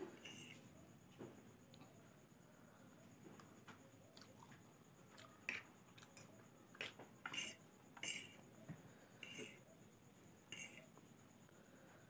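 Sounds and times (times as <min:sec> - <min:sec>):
chewing soft noodles: 0:04.1 - 0:07.0.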